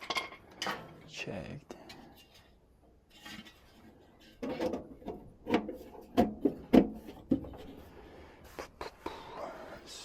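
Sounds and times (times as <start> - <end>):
furnace parts knocking and clunking: 3.2 - 7.9.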